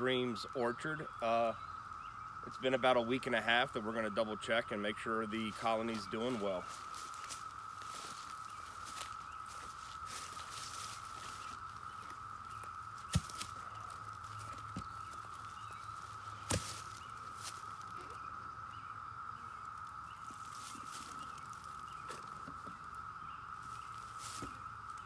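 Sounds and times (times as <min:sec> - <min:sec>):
footsteps: 0:06.0 - 0:18.2.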